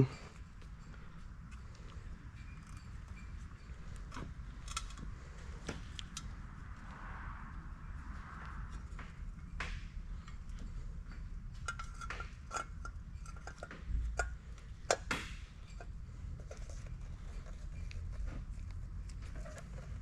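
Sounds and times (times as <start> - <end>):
low steady rumble: 0.0 - 20.0
metal parts and tools clinking: 2.4 - 5.1, 10.3 - 20.0.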